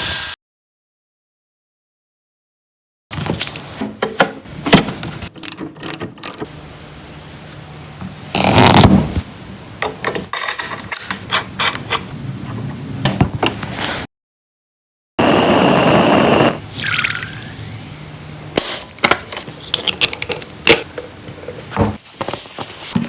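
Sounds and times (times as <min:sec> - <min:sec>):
small mechanical parts clicking: 0:05.4 - 0:06.4.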